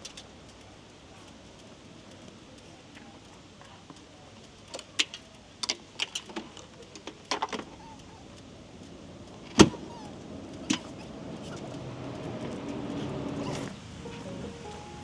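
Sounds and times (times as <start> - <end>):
soft music: 13.0 - 15.0.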